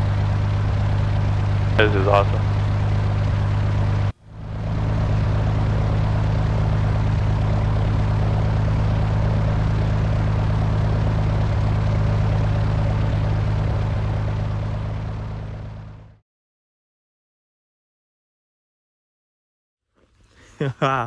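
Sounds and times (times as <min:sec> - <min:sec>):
small plane engine and propeller: 0:00.0 - 0:16.2.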